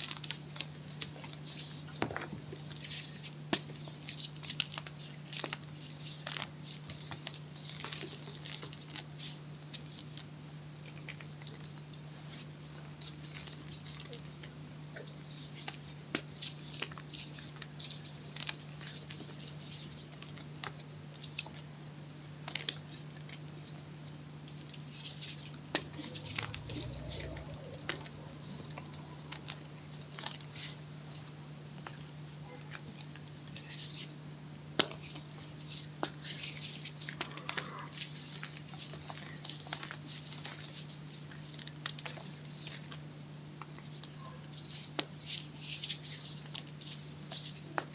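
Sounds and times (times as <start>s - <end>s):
steady low hum: 0.0s - 47.9s
chalk crunching: 24.5s - 31.3s, 43.6s - 47.9s.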